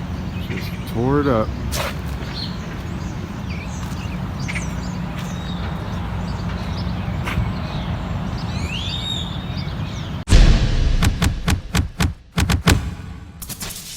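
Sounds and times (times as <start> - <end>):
birds chirping: 0.0 - 10.3
bird call rising and falling: 2.2 - 10.2.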